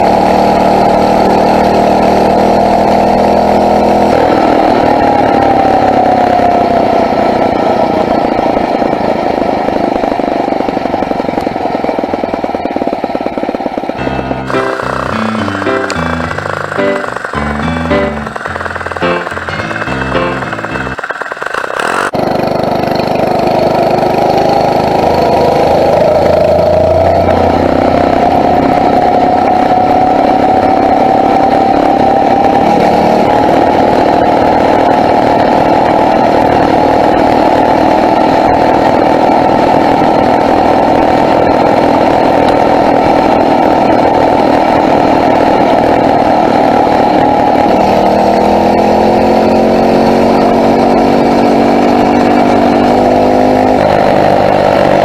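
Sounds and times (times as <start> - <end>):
motorized bicycle engine running: 14.5 - 22.2.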